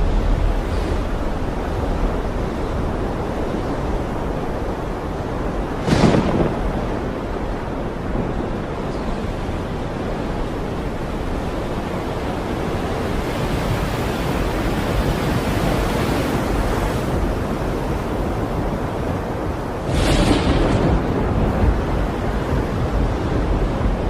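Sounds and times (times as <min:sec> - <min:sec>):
waves rushing: 0:00.0 - 0:24.0
wind: 0:00.0 - 0:24.0.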